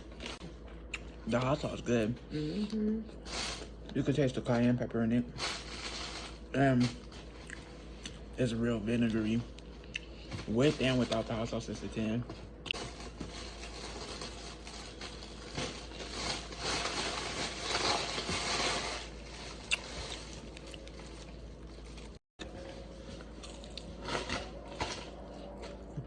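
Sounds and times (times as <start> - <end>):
takeout packaging rustling: 12.8 - 25.8.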